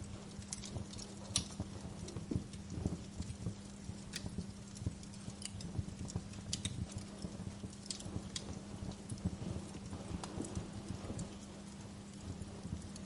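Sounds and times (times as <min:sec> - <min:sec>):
steady low hum: 0:00.0 - 0:13.0
wood fire crackling: 0:00.0 - 0:13.0
soft low thumps: 0:01.6 - 0:13.0.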